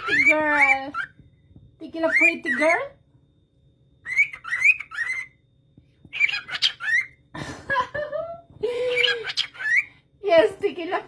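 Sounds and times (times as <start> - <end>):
parrot imitating speech: 0.0 - 1.1.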